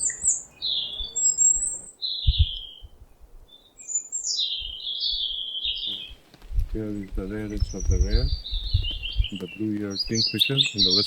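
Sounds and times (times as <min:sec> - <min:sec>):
bird chirping: 0:00.0 - 0:11.0
low thumps: 0:01.6 - 0:03.5, 0:06.4 - 0:09.5.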